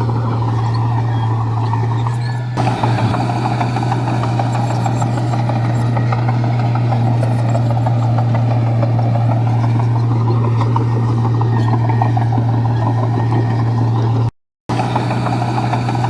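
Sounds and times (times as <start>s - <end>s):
bulldozer diesel engine running: 0.0s - 16.0s
rattling clatter: 1.7s - 14.2s.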